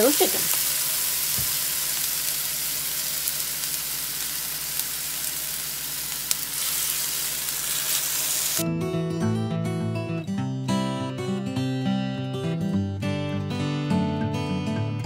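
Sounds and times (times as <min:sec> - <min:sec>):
oil popping: 0:00.0 - 0:08.6
patties sizzling in oil: 0:00.0 - 0:08.6
acoustic guitar music: 0:08.6 - 0:15.0.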